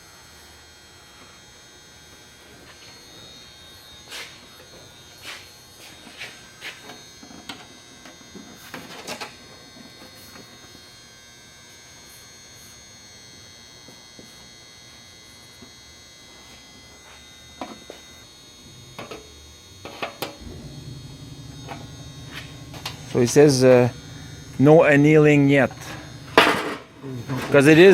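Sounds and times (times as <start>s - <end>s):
electrical hum with high whine: 0.0s - 27.9s
deep hum: 20.4s - 27.6s.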